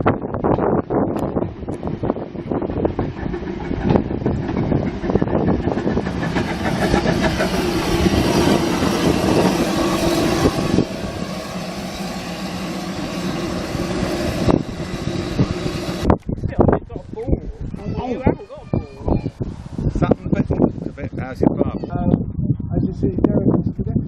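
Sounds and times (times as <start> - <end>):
engine running: 1.2 - 16.2.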